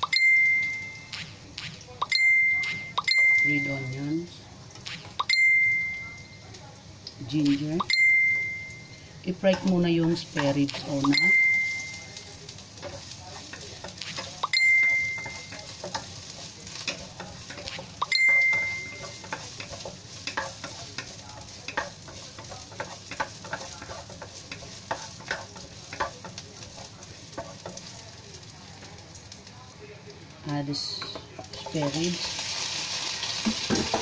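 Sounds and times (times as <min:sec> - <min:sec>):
aromatics sizzling in hot oil: 0:00.0 - 0:34.0
spatula tapping against pan: 0:12.8 - 0:28.0.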